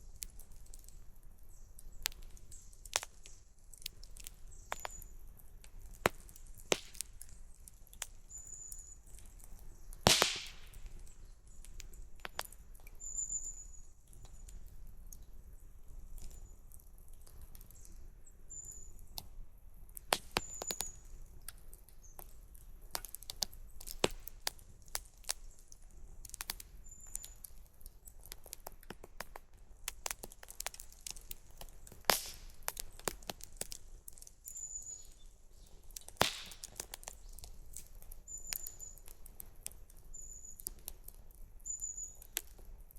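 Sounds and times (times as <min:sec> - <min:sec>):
campfire crackling and popping: 0:00.0 - 0:42.9
bird chirping: 0:13.0 - 0:13.8, 0:34.4 - 0:35.8, 0:41.6 - 0:42.3.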